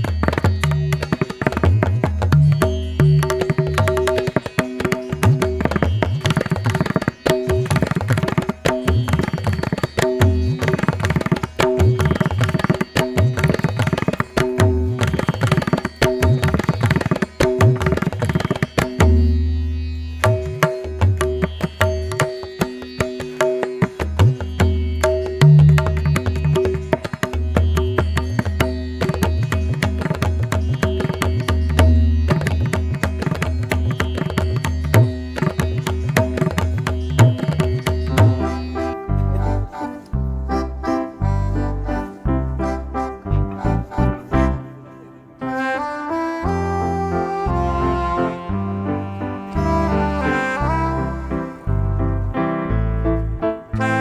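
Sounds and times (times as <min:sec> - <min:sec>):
rapid tabla drumming: 0:00.0 - 0:40.1.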